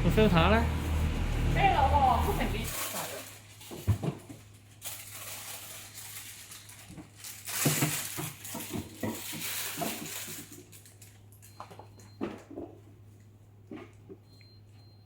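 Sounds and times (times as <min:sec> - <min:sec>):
rustling and knocks of handling: 0:03.6 - 0:04.6, 0:06.8 - 0:10.8.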